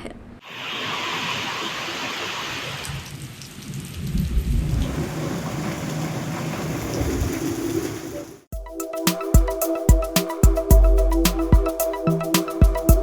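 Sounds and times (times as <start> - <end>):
heavy rain pouring: 0.4 - 8.4
low rumble: 3.8 - 6.0.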